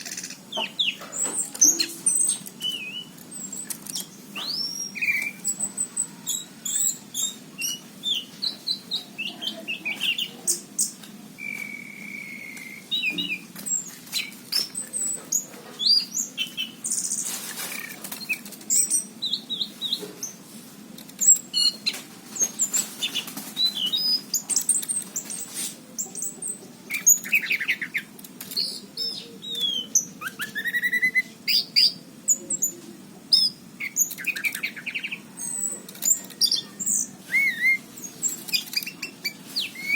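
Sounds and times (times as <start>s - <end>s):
thrush singing chirps and whistles: 1.6s - 5.6s, 11.4s - 13.4s, 26.9s - 32.0s, 33.3s - 39.9s.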